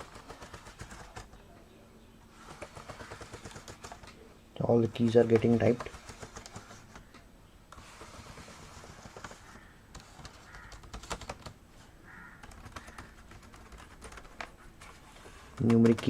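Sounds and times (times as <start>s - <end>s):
laptop keyboard clicks: 0.0s - 1.4s, 2.4s - 4.2s, 8.3s - 11.6s, 12.4s - 14.5s.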